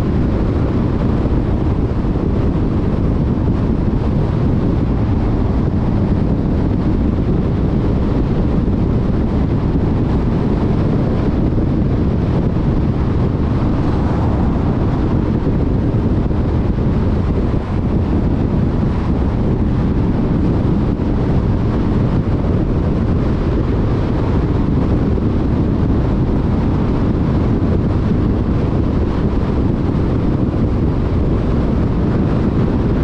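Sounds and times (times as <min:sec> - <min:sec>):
wind noise: 0:00.0 - 0:33.0.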